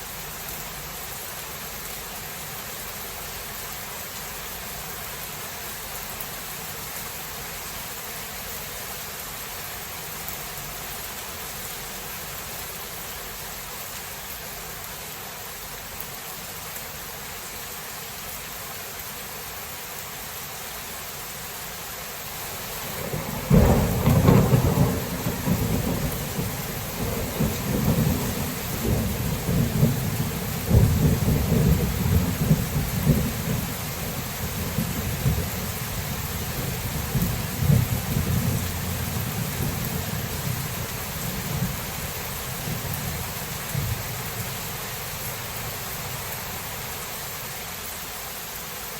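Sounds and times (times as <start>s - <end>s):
steady rain falling: 0.0s - 48.9s
thunder rumbling: 22.8s - 46.7s.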